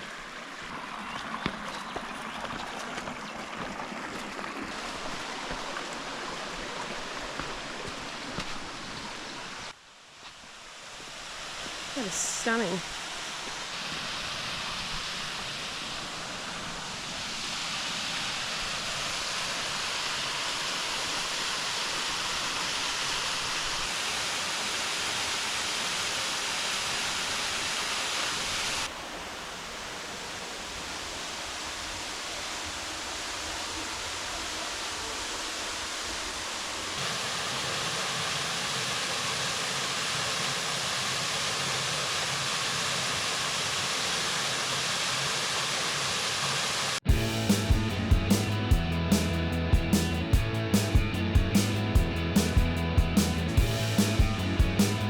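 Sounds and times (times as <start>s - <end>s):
waterfall rushing: 10.8s - 47.4s.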